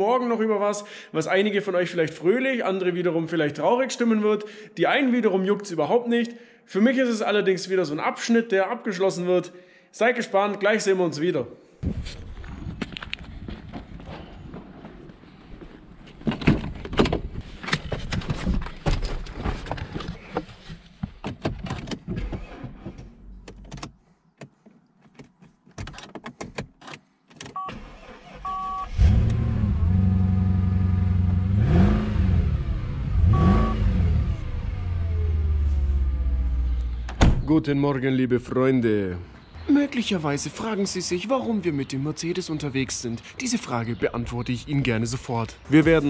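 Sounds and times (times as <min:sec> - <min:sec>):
car engine starting and idling: 0:27.6 - 0:37.3
short warning beeps: 0:28.4 - 0:29.0, 0:33.2 - 0:33.9.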